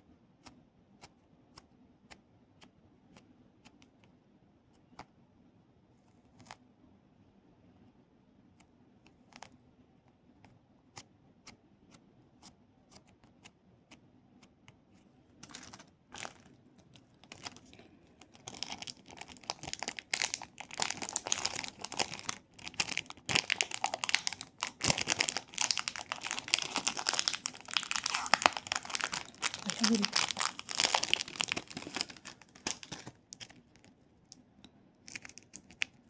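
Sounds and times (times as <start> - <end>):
crinkly material crackling: 15.4 - 34.4, 35.0 - 36.0.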